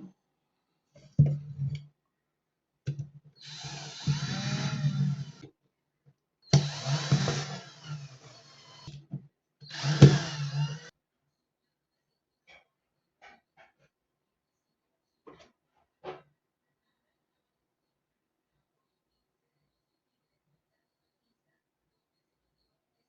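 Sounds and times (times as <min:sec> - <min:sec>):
small electric motor running: 0:03.4 - 0:05.4, 0:06.6 - 0:08.9, 0:09.7 - 0:10.9.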